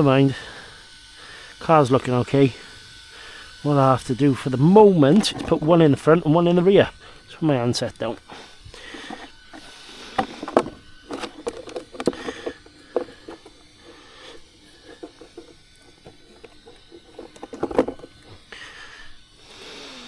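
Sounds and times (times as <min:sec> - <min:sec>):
plastic parts clicking and knocking: 0:05.1 - 0:05.8, 0:08.8 - 0:18.4.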